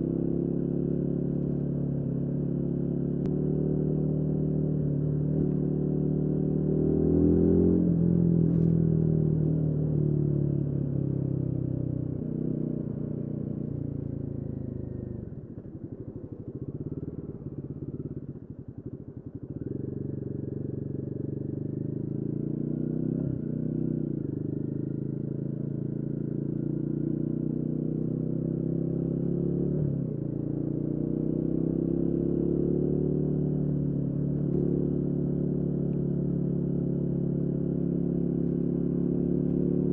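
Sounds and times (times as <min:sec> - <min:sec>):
motorcycle engine revving: 0:14.7 - 0:39.9.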